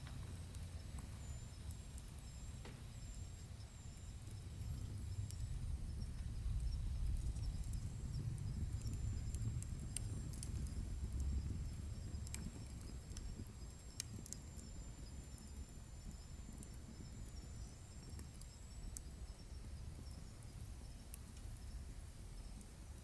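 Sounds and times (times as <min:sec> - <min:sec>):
low steady rumble: 0:00.0 - 0:14.0
wood fire crackling and popping: 0:00.0 - 0:23.0.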